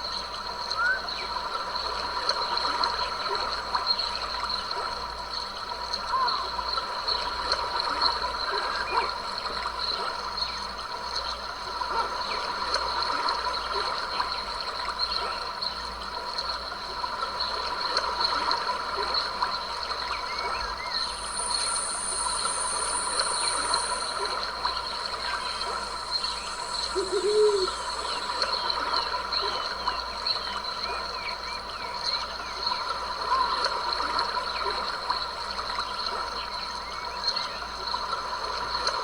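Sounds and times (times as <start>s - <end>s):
thin high steady tone: 20.6s - 29.4s
stream trickling over rocks: 20.8s - 29.2s.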